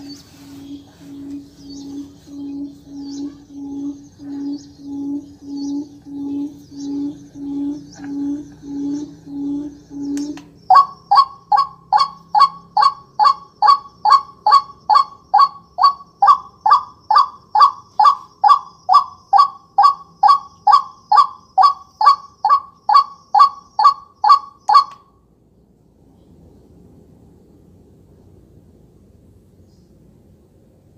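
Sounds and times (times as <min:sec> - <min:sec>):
honking bird call from speaker: 0:10.0 - 0:25.0.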